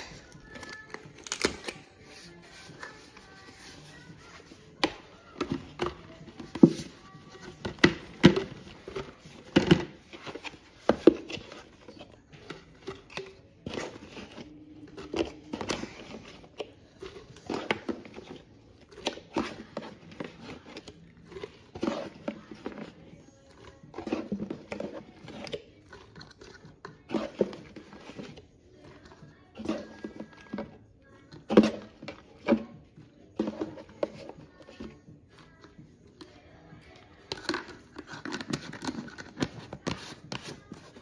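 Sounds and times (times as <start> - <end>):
food containers clunking and tapping: 0.0 - 41.0.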